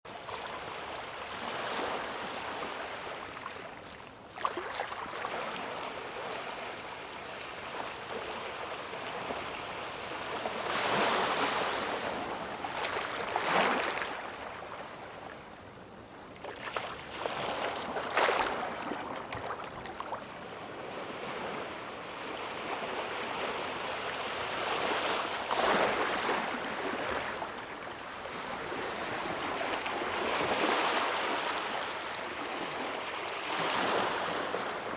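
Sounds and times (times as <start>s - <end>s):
waves breaking on shore: 0.2s - 15.4s, 16.2s - 34.9s.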